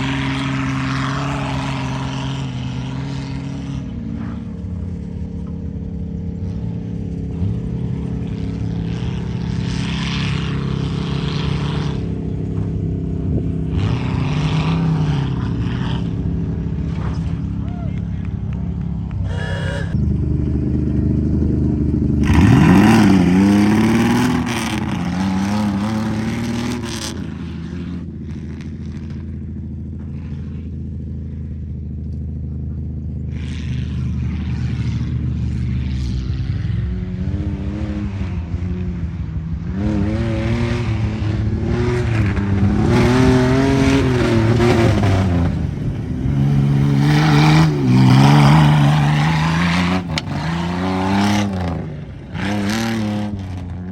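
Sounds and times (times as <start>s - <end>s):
truck engine revving hard: 0.0s - 4.6s, 13.4s - 17.5s, 19.0s - 28.1s, 39.7s - 53.9s.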